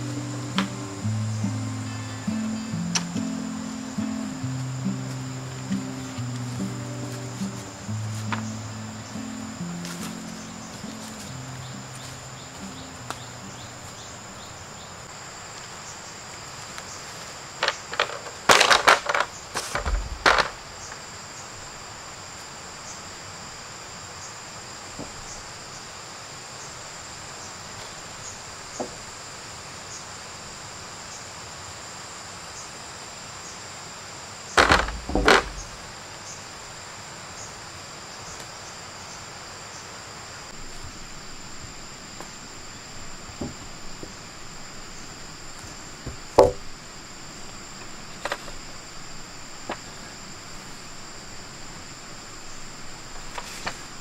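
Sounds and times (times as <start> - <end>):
thin high tones: 0.0 - 14.0
insect chirring: 0.0 - 54.0
loud sharp knocks and clatter: 18.0 - 20.6, 34.6 - 35.9.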